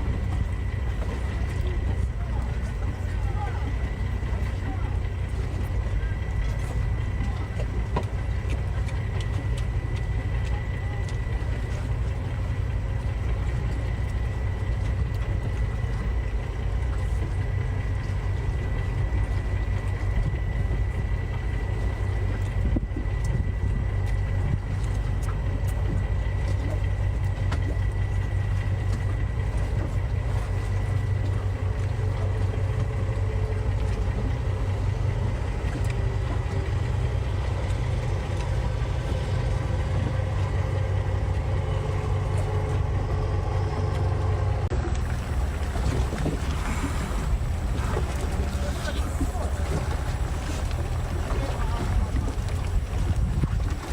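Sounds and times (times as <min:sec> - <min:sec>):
boat engine droning: 0:00.0 - 0:53.9.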